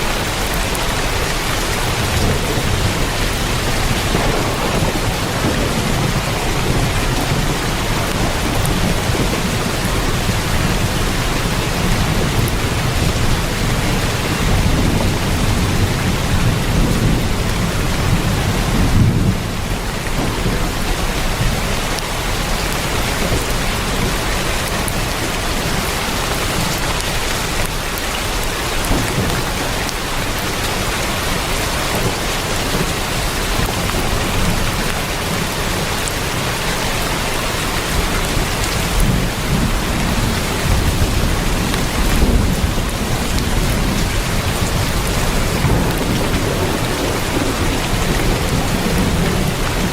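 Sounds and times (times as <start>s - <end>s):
heavy rain on a tin roof: 0.0s - 49.9s
low rumble of thunder: 0.0s - 49.9s.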